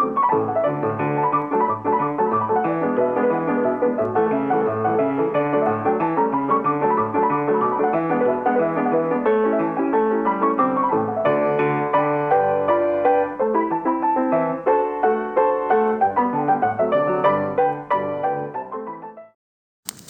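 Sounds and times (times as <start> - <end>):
piano music: 0.0 - 19.3.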